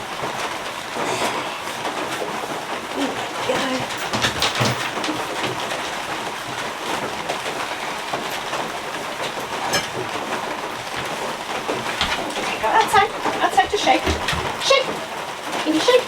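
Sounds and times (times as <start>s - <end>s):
heavy rain falling: 0.0s - 16.0s
light clicks and knocks: 3.3s - 15.1s.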